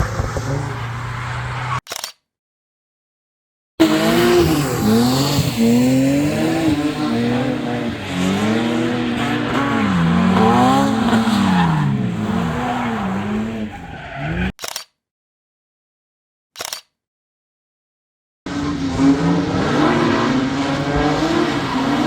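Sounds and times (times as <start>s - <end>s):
car engine revving: 0.0s - 1.8s, 3.8s - 14.5s, 18.5s - 22.0s.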